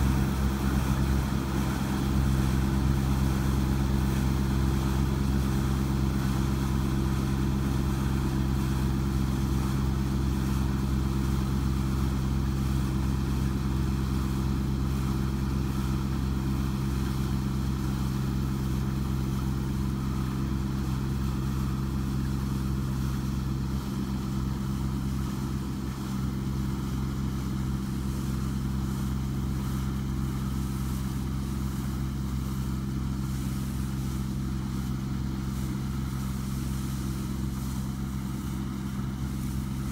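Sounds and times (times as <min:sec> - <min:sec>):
harvester engine droning: 0:00.0 - 0:12.8.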